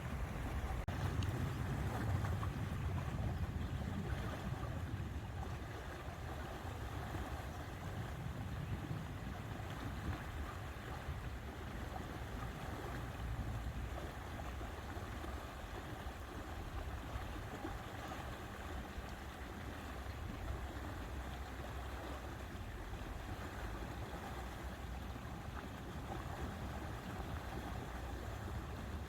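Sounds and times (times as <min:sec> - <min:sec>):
water: 0:00.0 - 0:29.0
wind: 0:00.0 - 0:29.0.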